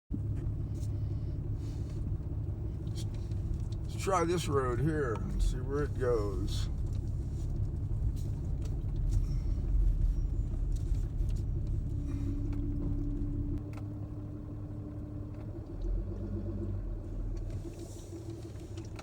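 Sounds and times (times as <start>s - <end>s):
engine and tyre rumble: 0.1s - 19.0s
steady engine tone: 0.1s - 19.0s.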